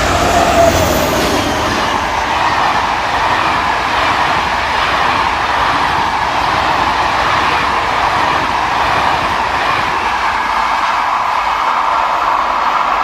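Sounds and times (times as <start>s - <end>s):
train passing on rails: 0.0s - 13.0s.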